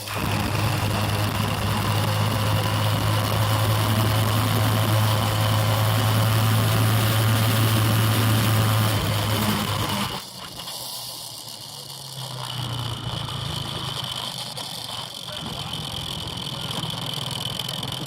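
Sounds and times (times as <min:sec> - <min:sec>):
motorbike engine droning: 0:00.0 - 0:18.0.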